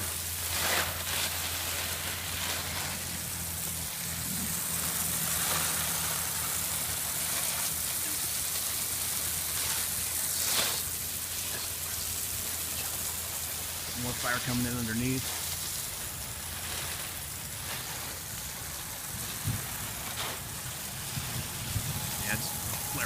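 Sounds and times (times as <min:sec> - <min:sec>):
water spattering on ground: 0:00.0 - 0:23.0.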